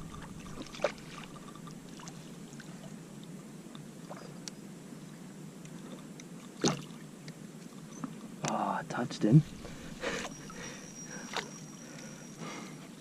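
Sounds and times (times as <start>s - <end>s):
water lapping against kayak hull: 0.0s - 3.0s, 5.7s - 8.3s, 9.4s - 12.7s.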